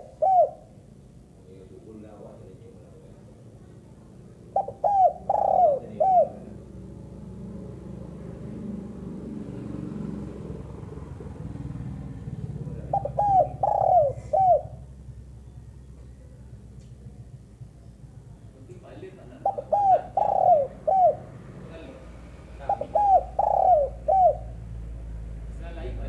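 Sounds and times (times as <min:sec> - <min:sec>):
dove cooing: 0:00.0 - 0:00.9, 0:04.3 - 0:08.0, 0:09.4 - 0:16.6, 0:19.0 - 0:21.8, 0:22.6 - 0:24.8
low steady rumble: 0:10.2 - 0:26.0.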